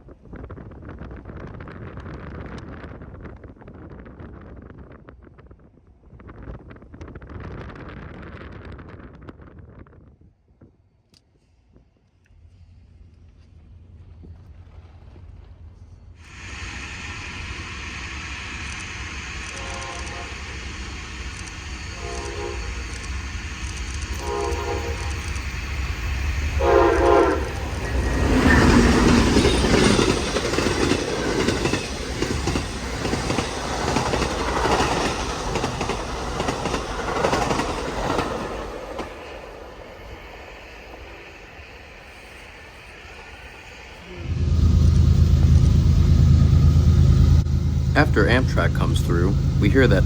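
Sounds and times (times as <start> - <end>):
train wheels clattering: 18.4 - 42.2
train horn blasts: 19.5 - 20.6, 21.9 - 23.0, 24.1 - 25.3, 26.6 - 28.1.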